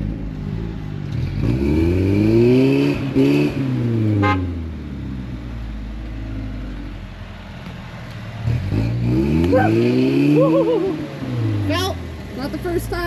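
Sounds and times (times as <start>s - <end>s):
engine revving: 0.0s - 13.0s.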